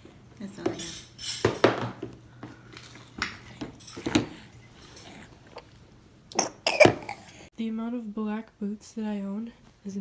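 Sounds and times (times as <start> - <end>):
dishes and cutlery clinking: 0.6 - 2.0.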